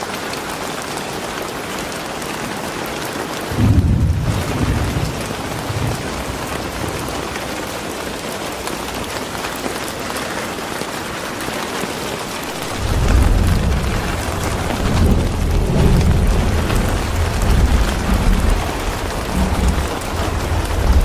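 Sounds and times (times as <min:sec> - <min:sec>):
steady rain falling: 0:00.0 - 0:21.0
low rumble: 0:12.5 - 0:21.0.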